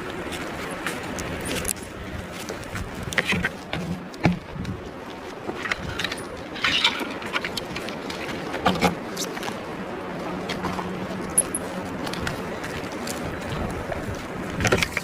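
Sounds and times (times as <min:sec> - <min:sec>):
metal climbing gear clinking: 0:05.6 - 0:08.4, 0:11.2 - 0:11.8.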